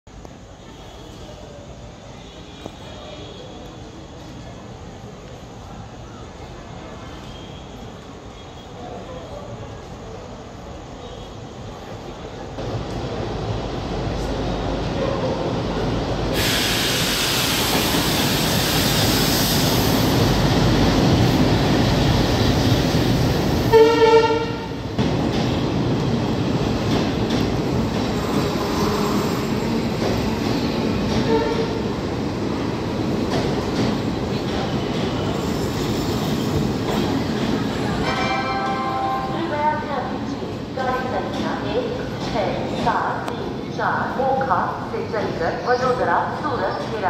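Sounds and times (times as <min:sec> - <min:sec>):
train engines and wheels rumbling: 0:00.1 - 0:47.0
train horn: 0:23.7 - 0:24.8, 0:28.4 - 0:29.5, 0:31.2 - 0:31.8, 0:38.0 - 0:39.5.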